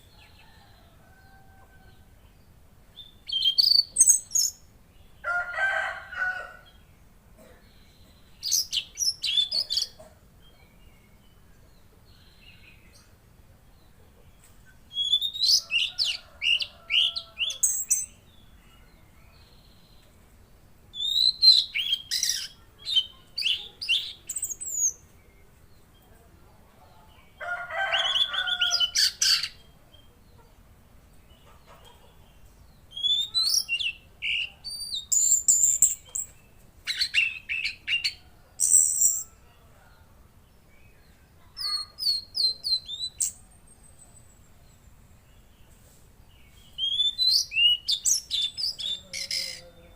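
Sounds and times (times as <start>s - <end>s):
songbird whistling: 14.9s - 15.6s, 32.9s - 35.9s, 46.8s - 49.4s.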